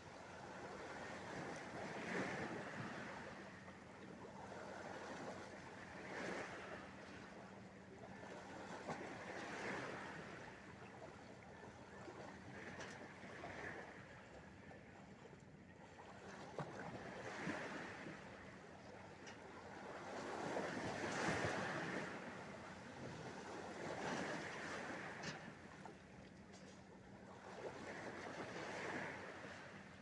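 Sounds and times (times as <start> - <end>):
sea waves breaking: 0.3 - 7.4, 8.1 - 10.7, 16.2 - 18.6, 19.6 - 26.2, 27.3 - 30.0.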